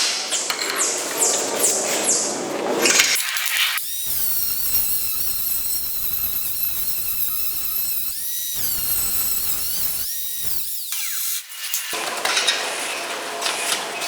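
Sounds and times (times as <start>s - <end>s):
angle grinder whining: 3.8s - 12.0s.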